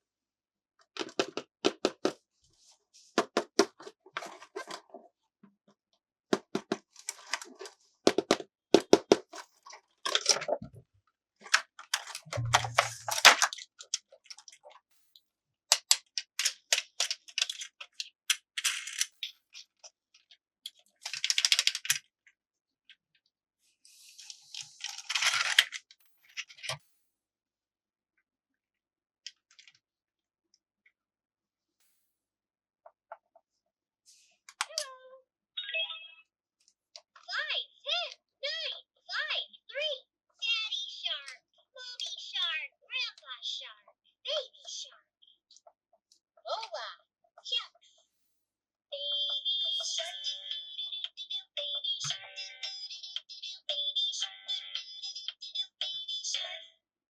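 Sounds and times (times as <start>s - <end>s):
plastic toy pieces clicking: 1.0s - 2.2s, 6.4s - 10.6s, 15.7s - 22.1s, 24.2s - 26.8s.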